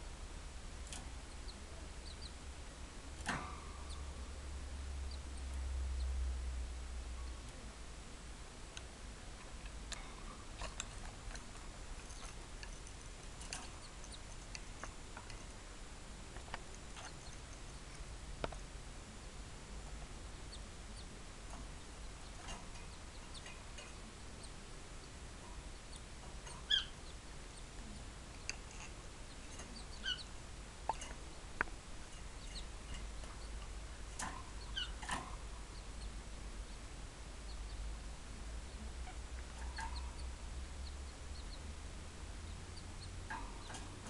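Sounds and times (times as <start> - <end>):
low steady hum: 0.0 - 44.0
baby birds cheeping: 0.9 - 2.5, 3.2 - 6.4, 10.2 - 15.6, 16.3 - 18.1, 20.2 - 38.0, 38.6 - 44.0.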